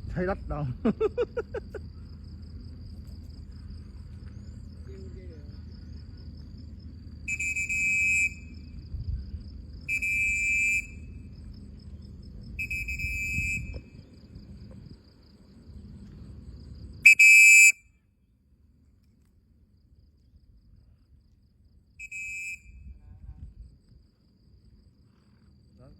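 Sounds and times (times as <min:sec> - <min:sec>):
low rumble: 0:08.4 - 0:09.9, 0:11.0 - 0:17.0.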